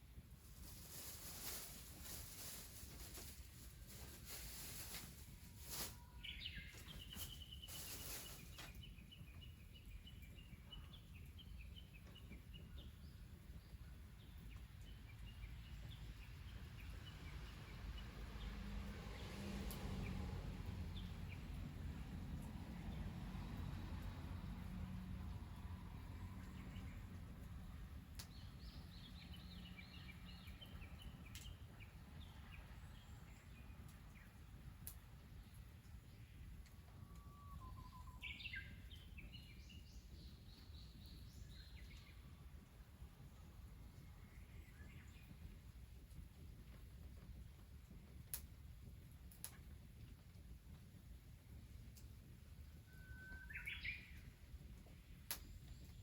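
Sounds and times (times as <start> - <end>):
songbird chirping: 35.5 - 42.2, 52.9 - 54.3.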